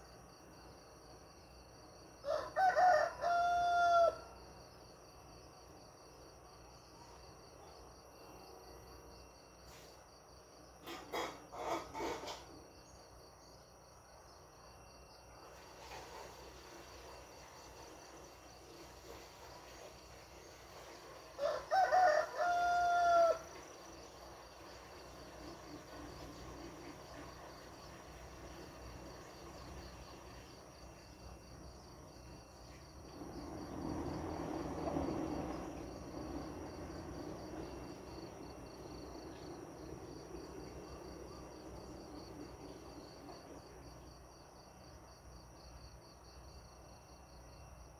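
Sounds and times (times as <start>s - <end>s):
crickets chirring: 0.0s - 47.9s
rooster crowing: 2.2s - 4.5s, 21.2s - 24.1s.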